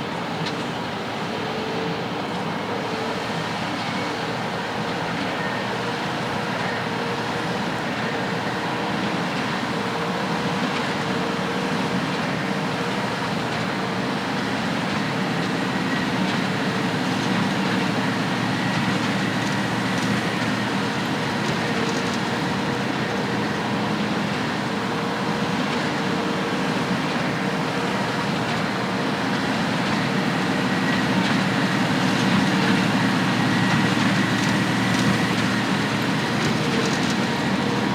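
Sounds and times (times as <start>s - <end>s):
heavy machinery drone: 16.7s - 37.9s.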